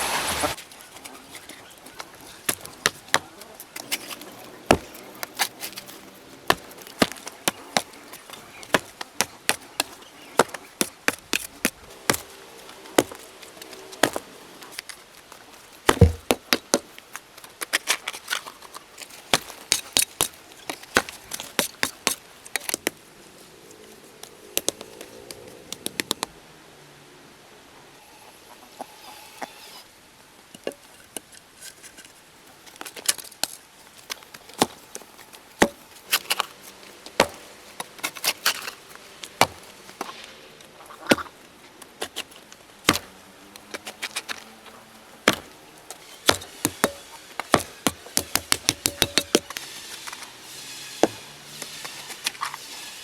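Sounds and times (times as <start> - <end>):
sharp knocks and chops on wood: 2.2 - 18.4, 19.2 - 23.0, 35.6 - 40.4, 41.0 - 41.3, 42.9 - 53.0.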